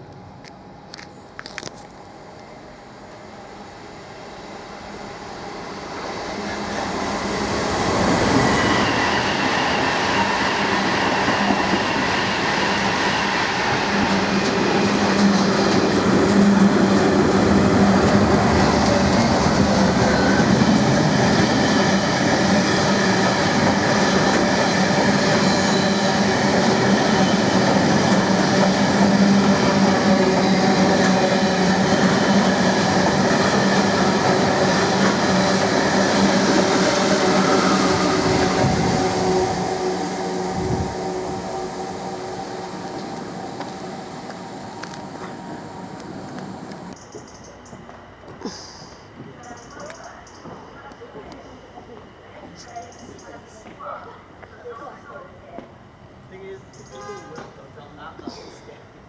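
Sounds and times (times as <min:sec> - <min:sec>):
freight train passing: 0:00.0 - 0:48.4, 0:49.0 - 0:59.0
thin steady whine: 0:37.2 - 0:57.1.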